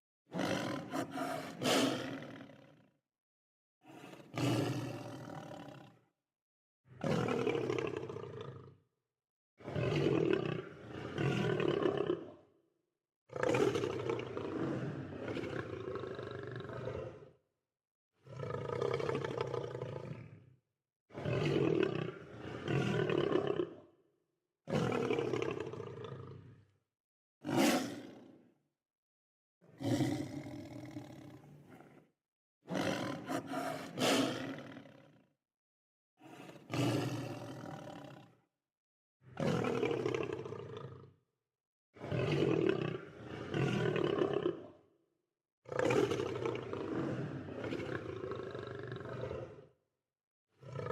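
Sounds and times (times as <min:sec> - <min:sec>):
lion roaring and growling: 0:29.8 - 0:32.0, 0:32.7 - 0:35.0, 0:36.2 - 0:38.2.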